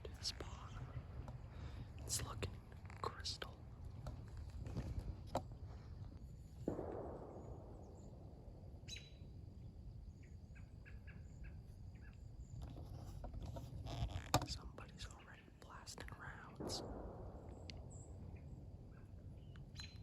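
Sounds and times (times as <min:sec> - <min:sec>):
faint bird chirps: 0:00.0 - 0:03.6, 0:07.2 - 0:13.2, 0:13.9 - 0:16.8, 0:17.5 - 0:20.0.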